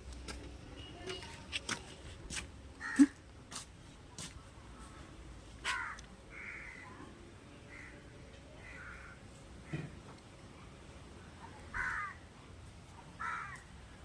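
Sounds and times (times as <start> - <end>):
harsh crow-like bird calls: 5.6 - 7.0, 8.6 - 10.0, 11.7 - 12.2, 13.2 - 13.7.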